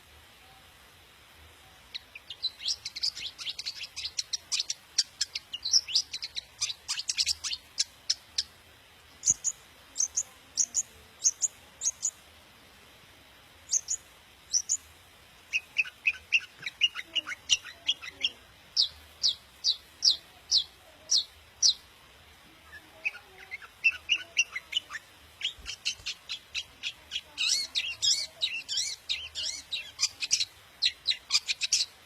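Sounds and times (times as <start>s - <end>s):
bird singing high chattering notes: 1.9s - 8.5s, 9.2s - 12.2s, 13.7s - 14.8s, 15.5s - 21.8s, 22.7s - 31.9s.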